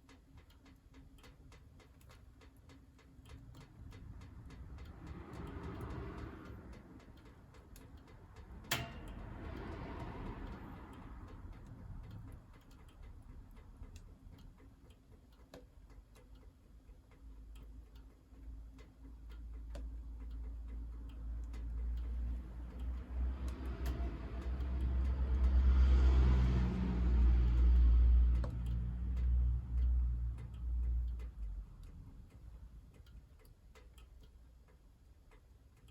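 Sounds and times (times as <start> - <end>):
low rumble: 21.3 - 32.8.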